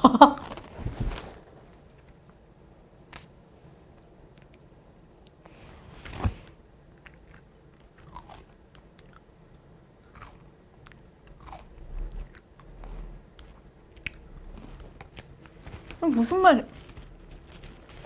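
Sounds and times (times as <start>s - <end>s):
cereal crunching while chewed: 6.9s - 16.0s, 16.7s - 18.0s.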